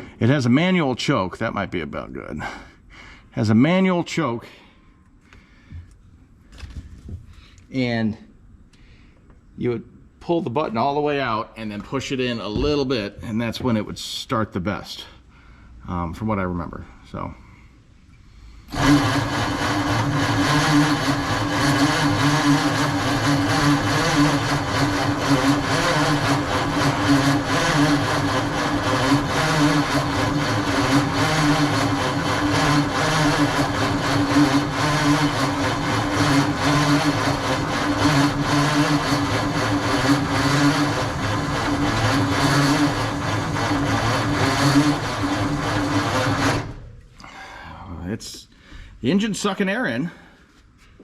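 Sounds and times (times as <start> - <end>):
starter cranking truck engine: 18.7 - 47.0.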